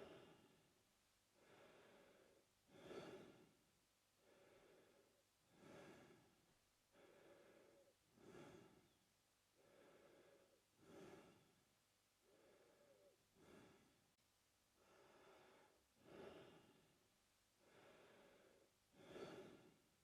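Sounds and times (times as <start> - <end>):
man breathing through mouth: 1.4 - 3.5, 4.2 - 9.0, 9.6 - 11.6, 12.2 - 14.0, 17.6 - 19.8.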